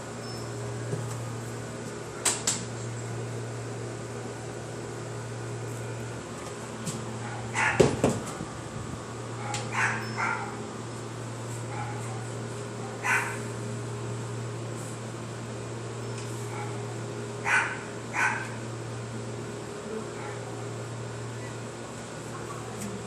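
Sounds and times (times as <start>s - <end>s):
low mechanical hum: 0.0s - 23.0s
dog barking: 7.2s - 7.9s, 9.4s - 10.6s, 11.7s - 12.1s, 13.0s - 13.5s, 17.4s - 18.6s.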